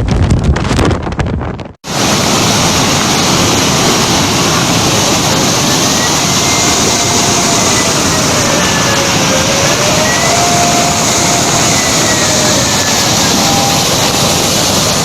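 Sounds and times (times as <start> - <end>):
strong wind: 0.0 - 15.0
heavy rain: 1.8 - 15.0
faint wavering whistle: 5.8 - 15.0.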